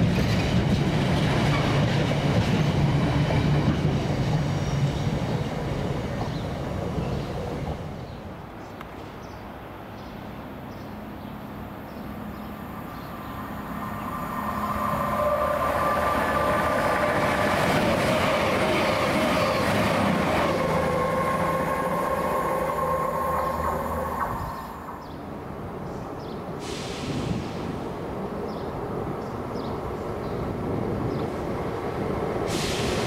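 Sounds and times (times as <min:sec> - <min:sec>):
diesel train passing: 0:00.0 - 0:33.0.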